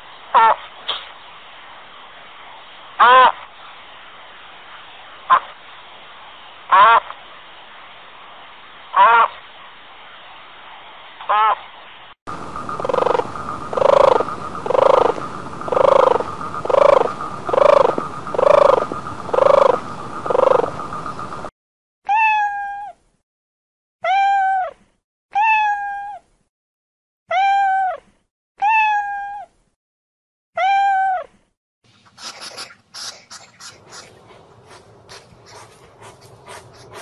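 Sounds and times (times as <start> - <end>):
steady hiss: 0.0 - 11.2, 11.8 - 21.5, 31.9 - 37.0
animal calls: 12.6 - 20.9, 32.0 - 37.0
cat meowing: 22.1 - 23.0, 24.0 - 24.7, 25.4 - 26.2, 28.6 - 29.5, 30.6 - 31.2.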